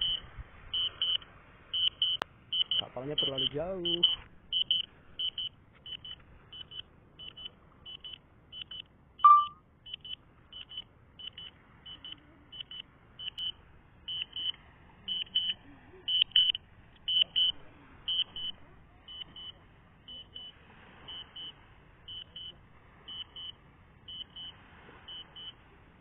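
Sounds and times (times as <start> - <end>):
short high-pitched warning beeps: 0.0 - 25.7
low alert tone: 9.2 - 9.6.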